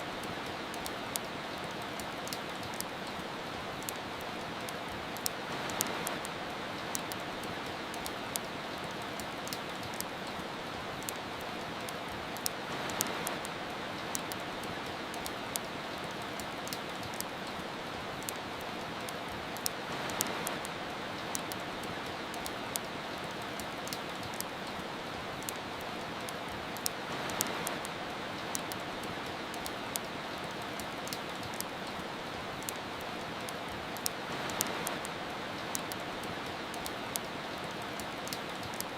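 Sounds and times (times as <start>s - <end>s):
soft rain hissing: 0.0s - 38.9s
wood fire crackling: 0.0s - 38.9s.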